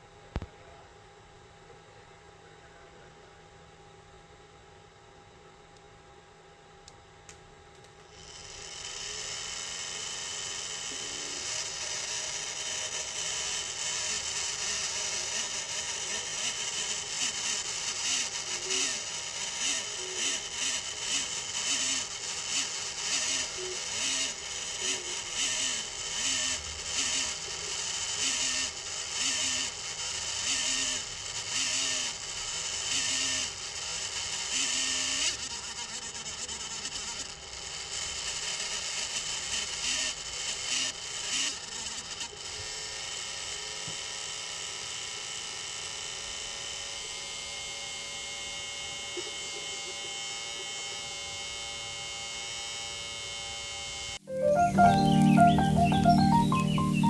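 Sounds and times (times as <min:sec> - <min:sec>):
stepper motors changing notes: 0:54.2 - 0:57.0.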